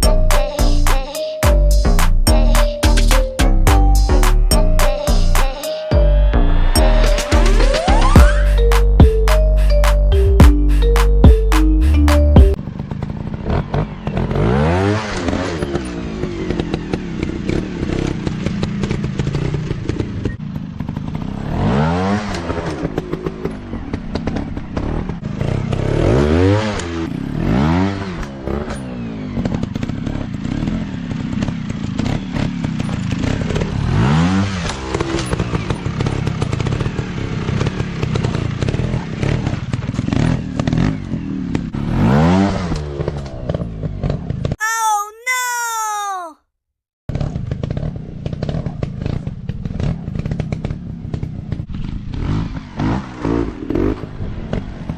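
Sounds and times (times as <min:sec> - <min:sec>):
knocks and clatter from bikes: 0:12.6 - 0:41.8, 0:42.6 - 0:44.6, 0:47.1 - 0:54.9.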